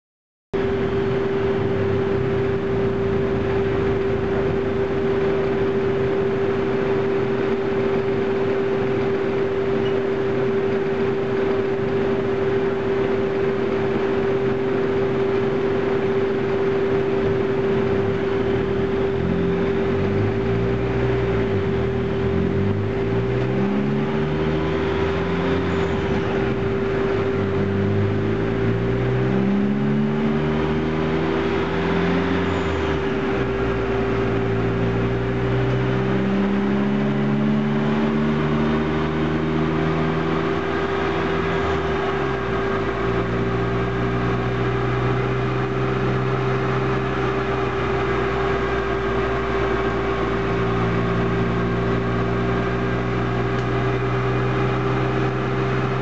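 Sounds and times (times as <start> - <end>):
car engine revving: 0.6 - 56.0
dyno equipment humming: 0.6 - 56.0.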